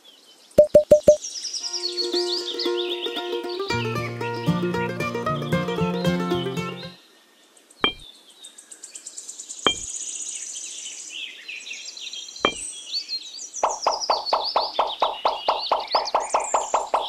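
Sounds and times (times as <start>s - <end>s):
high-pitched chirping: 0.6s - 4.5s
background music: 1.8s - 7.0s.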